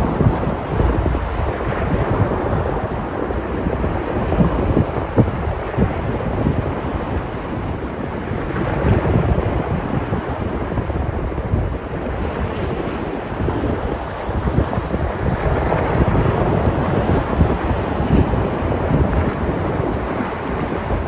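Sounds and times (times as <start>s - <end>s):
waves breaking on shore: 0.0s - 21.0s
wind buffeting microphone: 0.0s - 21.0s.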